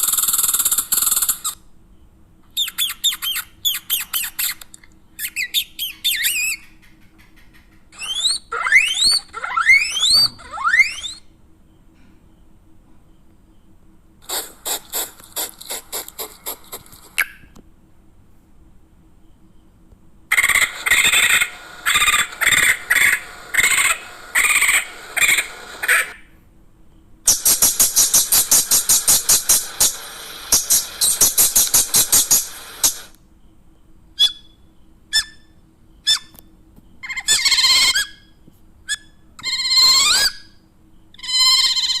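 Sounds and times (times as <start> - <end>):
animal chirps and squeaks: 0.0 - 1.6, 2.5 - 11.4, 20.3 - 26.2, 27.3 - 33.1, 34.2 - 36.4, 37.0 - 42.0
gliding animal calls: 5.8 - 11.3, 20.3 - 26.2.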